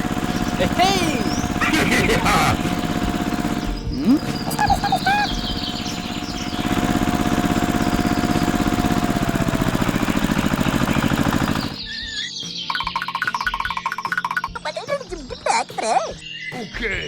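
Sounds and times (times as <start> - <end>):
tractor engine chugging: 0.0 - 11.8.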